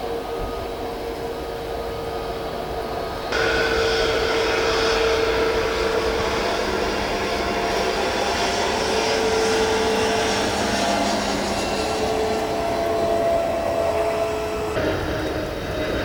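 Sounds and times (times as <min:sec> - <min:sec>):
jet engines whining: 0:00.0 - 0:16.0.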